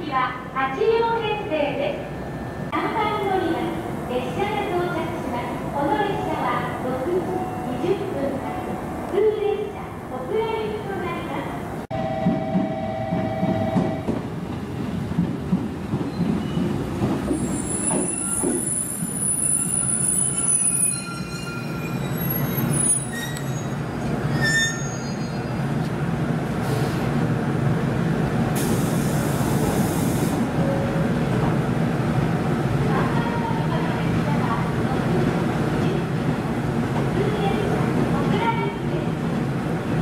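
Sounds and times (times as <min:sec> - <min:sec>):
train rumble: 0:01.0 - 0:24.6
train brakes squealing: 0:16.0 - 0:25.8
air hiss: 0:28.6 - 0:30.5.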